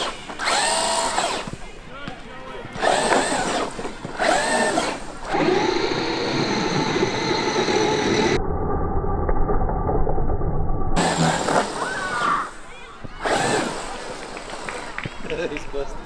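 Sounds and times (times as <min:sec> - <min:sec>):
electric motor whining: 0:00.0 - 0:01.6, 0:02.8 - 0:08.4, 0:11.0 - 0:12.6, 0:13.2 - 0:15.1.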